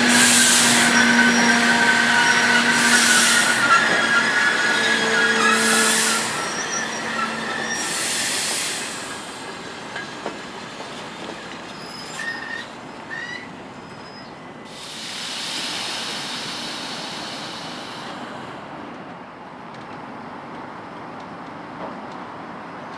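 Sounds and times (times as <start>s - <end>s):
train brakes squealing: 0.0s - 18.8s
train clanks: 0.0s - 22.9s
steady hiss: 14.7s - 18.5s.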